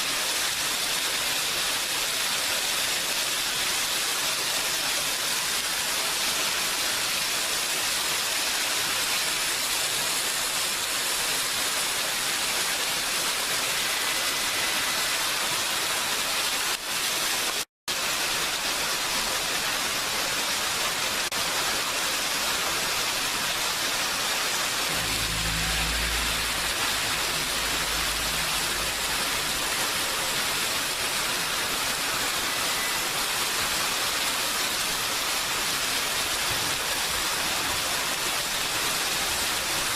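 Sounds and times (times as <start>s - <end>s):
heavy rain: 0.0s - 39.9s
low rumble: 24.9s - 31.1s.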